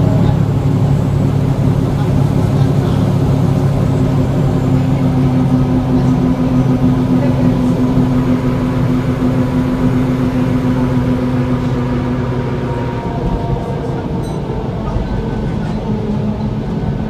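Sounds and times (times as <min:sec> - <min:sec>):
bus diesel engine drone: 0:00.0 - 0:17.0.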